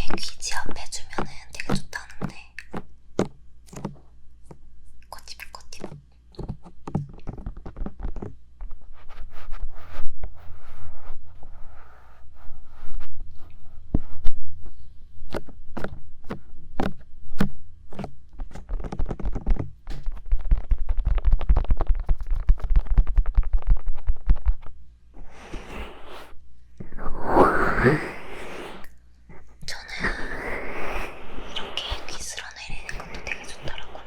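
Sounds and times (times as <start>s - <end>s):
fingers rubbing on microphone: 5.1s - 34.0s
fingers tapping on microphone: 5.4s - 8.8s, 15.3s - 24.7s.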